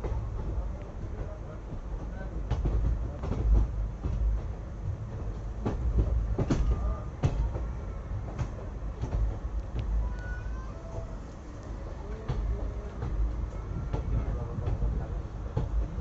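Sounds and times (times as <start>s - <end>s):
wheels knocking and rattling: 0.0s - 10.2s, 11.7s - 16.0s
train rumbling: 0.0s - 16.0s.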